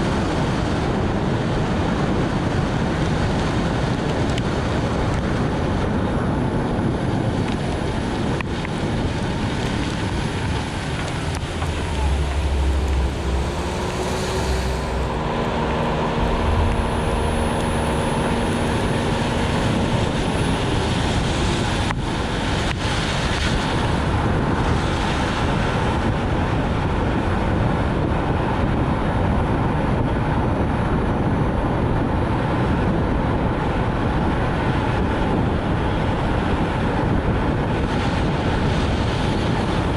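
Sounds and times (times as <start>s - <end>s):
tyres hissing on wet road: 0.0s - 27.4s
rain: 0.0s - 39.9s
wind: 0.0s - 39.9s
low hum with gliding tone: 9.5s - 25.8s.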